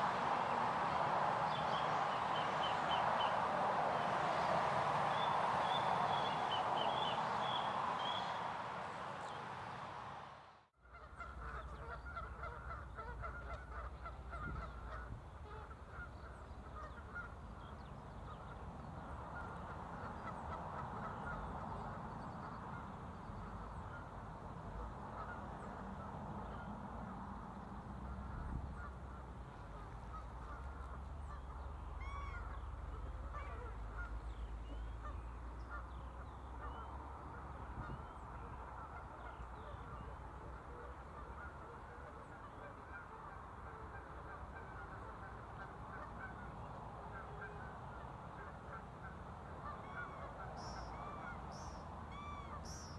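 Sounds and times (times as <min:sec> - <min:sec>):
flock of waterfowl calling: 0:00.0 - 0:09.8, 0:10.8 - 0:52.9.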